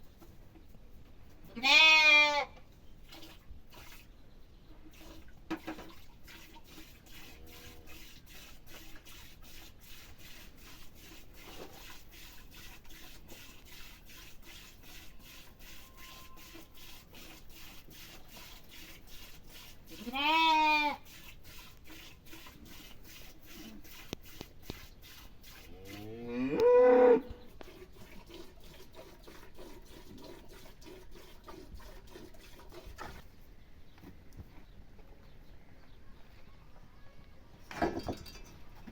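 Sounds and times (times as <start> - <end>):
cattle mooing: 25.8 - 27.3.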